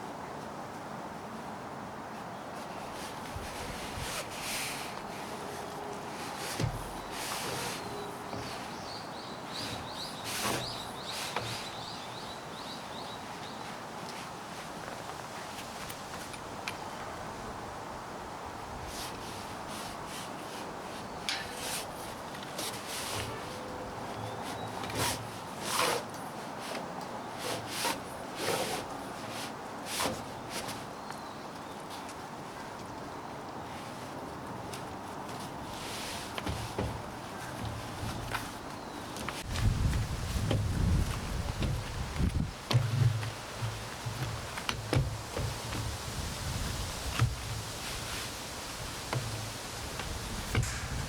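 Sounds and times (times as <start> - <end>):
steady wind noise: 0.0 - 22.4, 32.2 - 51.0
steady background hiss: 0.0 - 51.0
fabric and poles scraping: 2.6 - 12.3, 18.8 - 31.0, 33.7 - 51.0
sharp knocks or clicks: 50.5 - 51.0
thump: 50.5 - 51.0.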